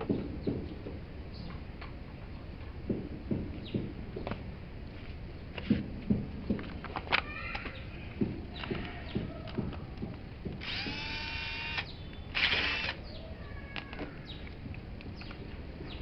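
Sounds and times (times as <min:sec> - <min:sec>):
tools clicking and knocking: 0:06.5 - 0:13.0
electric drill spinning: 0:10.5 - 0:13.0.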